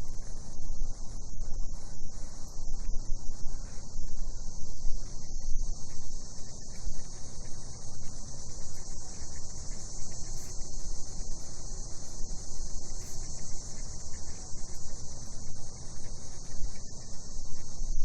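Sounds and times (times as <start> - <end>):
cicadas chorus: 0.1 - 18.0.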